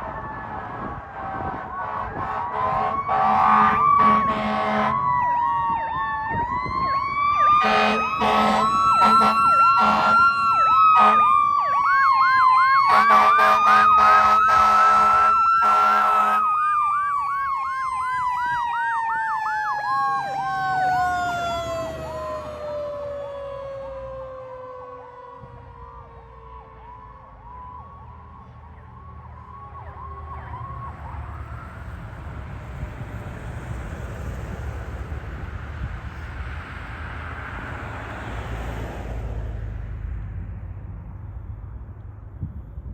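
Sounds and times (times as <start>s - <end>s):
siren yelp: 0.0s - 32.9s
siren wail: 0.0s - 35.1s
air horn blasts: 1.5s - 5.0s, 7.6s - 11.3s, 12.9s - 16.5s.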